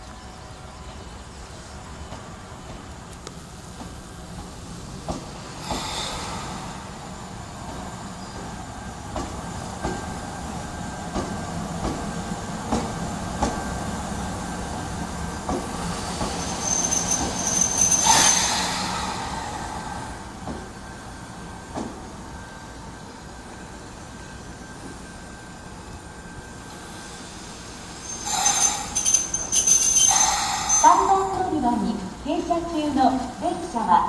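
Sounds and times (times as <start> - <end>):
train rumbling: 0.0 - 34.0.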